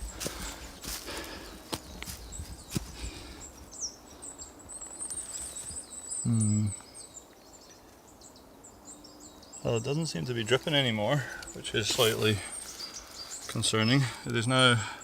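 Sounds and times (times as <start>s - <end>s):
man's low vocal sound: 6.2s - 6.9s.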